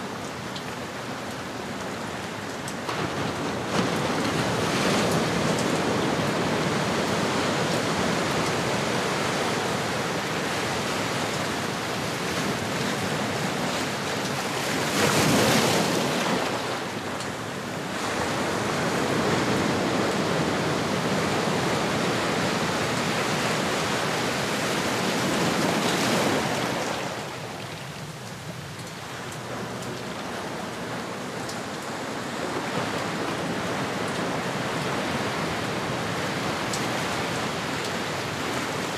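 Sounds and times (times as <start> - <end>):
ocean waves washing in: 0.8 - 38.9.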